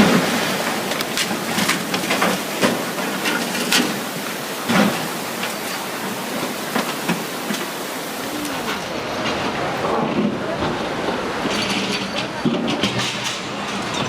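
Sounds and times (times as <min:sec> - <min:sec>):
river water rushing: 0:00.0 - 0:14.0
faint voices: 0:02.8 - 0:14.0.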